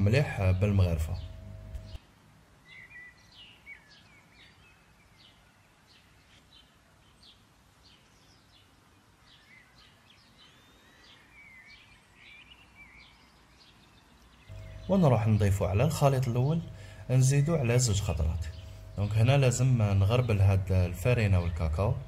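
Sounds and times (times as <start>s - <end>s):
low steady hum: 0.0s - 2.0s, 14.5s - 22.0s
faint birds chirping: 0.0s - 22.0s.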